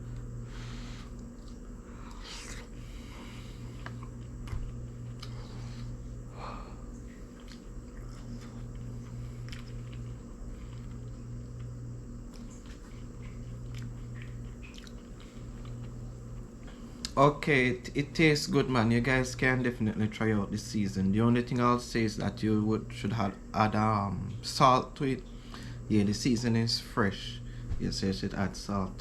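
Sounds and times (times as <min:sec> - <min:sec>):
steady low hum: 0:00.0 - 0:29.0
person chewing food: 0:00.1 - 0:17.2
small eating clicks: 0:06.8 - 0:17.3.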